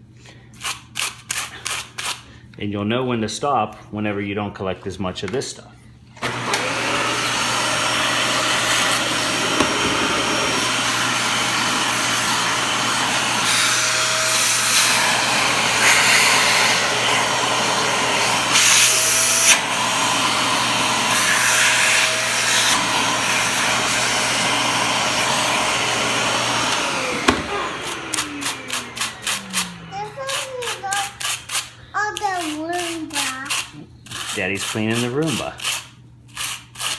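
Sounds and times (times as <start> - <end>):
vacuum cleaner running: 6.2 - 31.3
motor winding down whine: 24.3 - 30.0.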